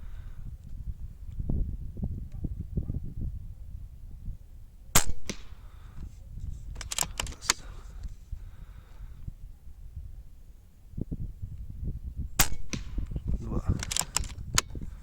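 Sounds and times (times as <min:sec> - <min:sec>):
wind buffeting microphone: 0:00.0 - 0:15.0
air rifle shot crack: 0:05.0 - 0:06.0, 0:12.4 - 0:14.3
sharp mechanical clicks: 0:06.8 - 0:07.7, 0:13.8 - 0:14.7.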